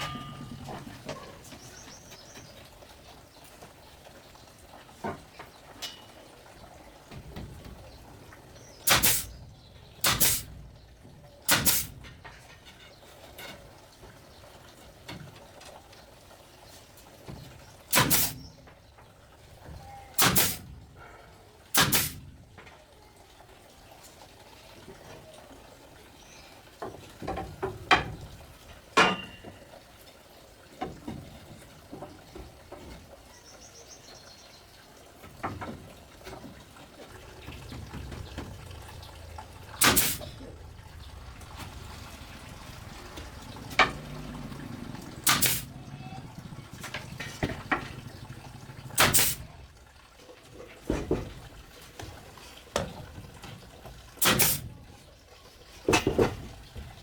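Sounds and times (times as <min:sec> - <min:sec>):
sharp knocks: 0:37.5 - 0:40.6, 0:41.4 - 0:45.7.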